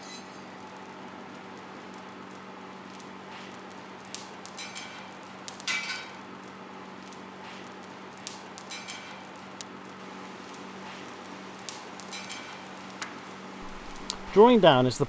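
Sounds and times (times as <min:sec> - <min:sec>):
low hum: 0:13.6 - 0:15.0.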